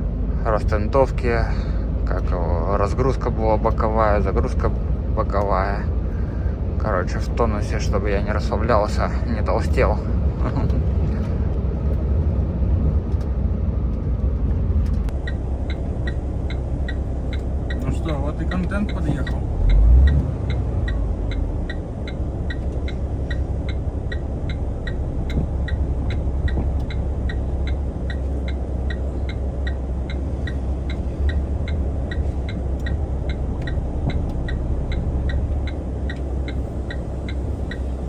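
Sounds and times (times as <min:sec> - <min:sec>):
truck engine rumbling: 0:00.0 - 0:38.0
indicator ticking: 0:15.1 - 0:38.0.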